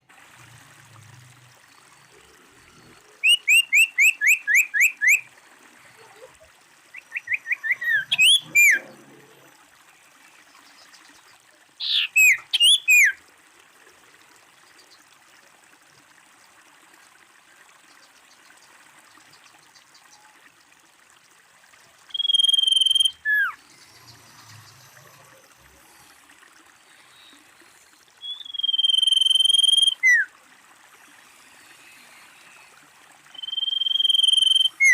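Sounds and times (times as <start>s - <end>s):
bird chirping: 3.2s - 5.2s, 6.9s - 8.9s, 11.8s - 13.2s, 22.1s - 24.8s, 28.2s - 30.3s, 33.3s - 34.9s
bird whistling: 3.2s - 5.3s, 6.9s - 8.8s, 11.8s - 13.2s, 22.1s - 23.6s, 28.2s - 30.3s, 33.3s - 34.9s.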